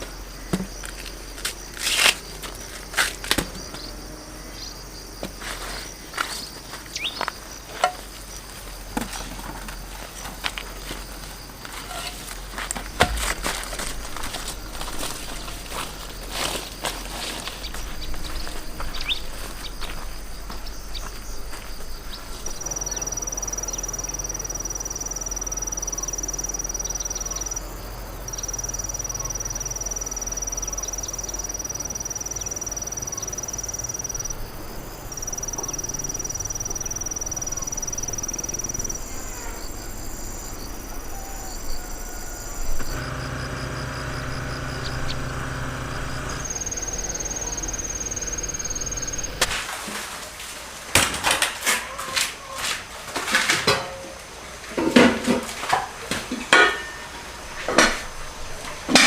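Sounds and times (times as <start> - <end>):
insects trilling: 0.0 - 49.8
outdoor rustling: 0.0 - 59.0
knocks: 12.9 - 14.3.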